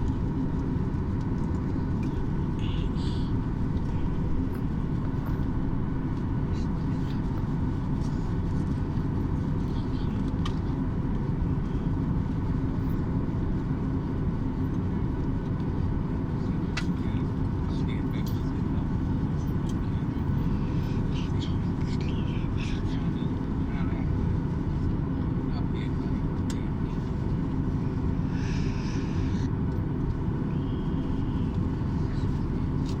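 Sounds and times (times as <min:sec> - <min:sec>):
engines and air system rumble: 0:00.0 - 0:33.0
faint steady tones: 0:25.5 - 0:33.0.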